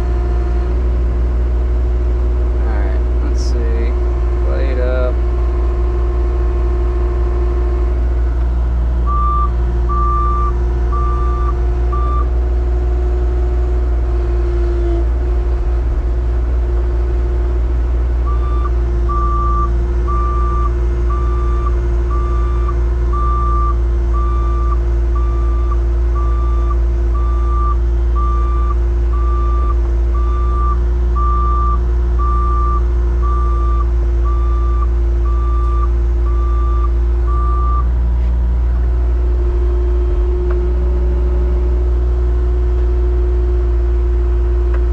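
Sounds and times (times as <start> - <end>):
heavy vehicle engine running: 0.0 - 44.9
backup alarm beeping: 9.1 - 12.3, 18.3 - 37.9.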